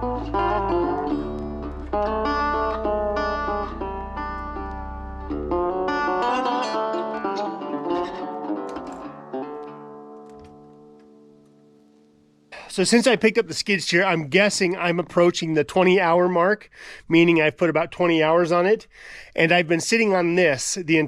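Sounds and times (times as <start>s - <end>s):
low bass line: 0.0s - 6.6s
plucked strings music: 0.0s - 12.4s.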